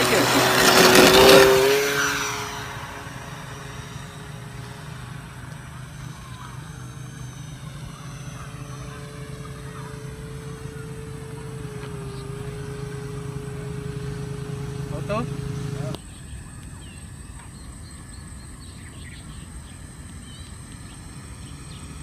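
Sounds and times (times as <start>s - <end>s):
model plane motor whining: 0.0s - 16.0s.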